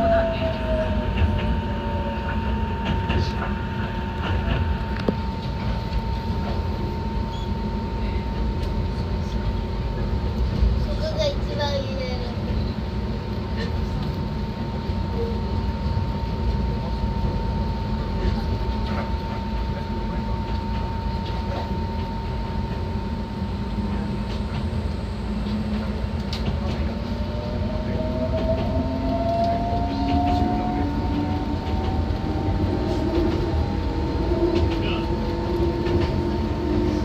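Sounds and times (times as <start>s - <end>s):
train motor whine: 0.0s - 7.8s, 18.8s - 37.0s
train wheels rumbling on rail: 0.0s - 37.0s.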